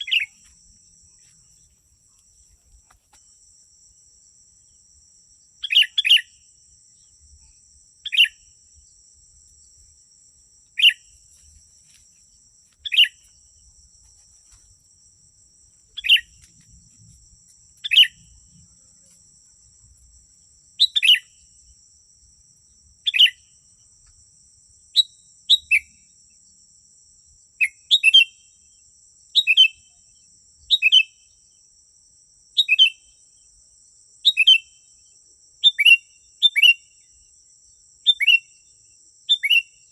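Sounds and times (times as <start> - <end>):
bird chirping phrases: 0.0 - 0.4, 5.6 - 6.4, 8.0 - 8.5, 10.8 - 11.2, 12.8 - 13.3, 15.9 - 16.4, 17.8 - 18.4, 20.8 - 21.3, 38.1 - 38.6, 39.3 - 39.8.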